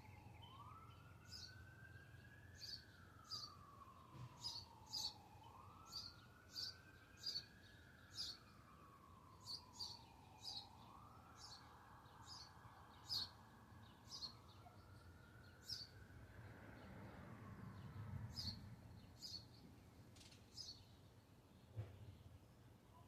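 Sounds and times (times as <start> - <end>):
small bird chirping: 4.4 - 5.3, 5.9 - 8.5, 9.4 - 10.7, 11.4 - 16.0, 18.3 - 21.7.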